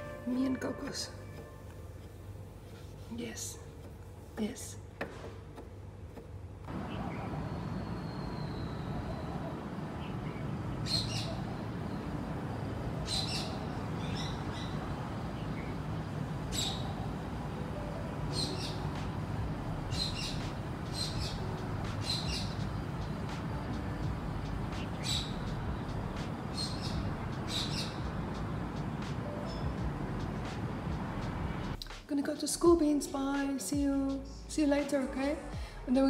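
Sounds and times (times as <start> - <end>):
low background rumble: 6.7 - 31.8
small birds chirping: 6.7 - 31.8.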